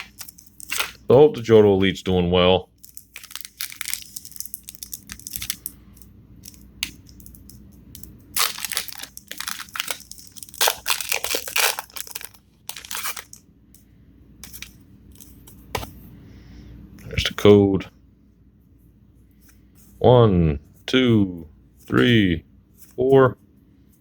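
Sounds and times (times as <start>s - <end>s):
foil wrapper tearing and crinkling: 0.0s - 1.0s, 2.8s - 5.7s, 7.9s - 13.4s.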